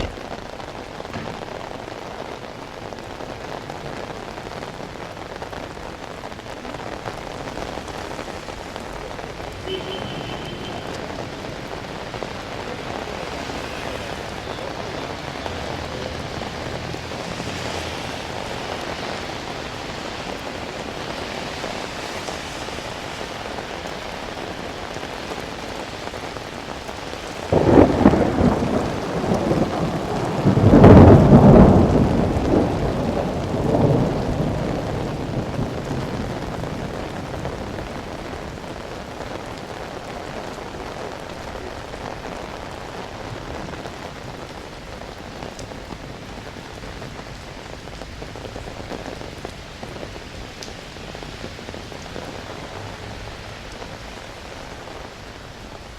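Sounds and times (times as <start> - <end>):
loud thunderclap rumbling: 0.0 - 2.4, 27.4 - 39.2
steady rain falling: 0.0 - 55.9.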